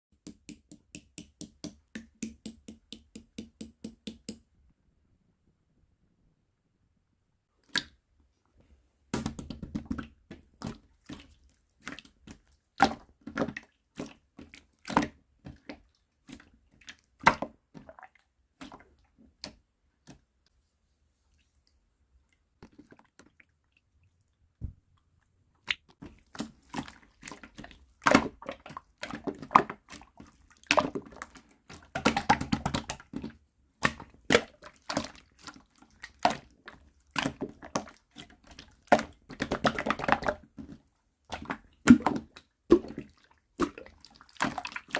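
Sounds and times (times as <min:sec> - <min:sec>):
slime squishing with wet pops: 0:25.6 - 0:44.9.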